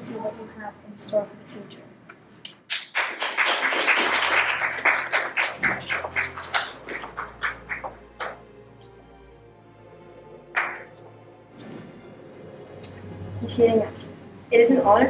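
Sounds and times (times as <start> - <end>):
small group applauding: 2.6 - 8.5, 10.6 - 11.0.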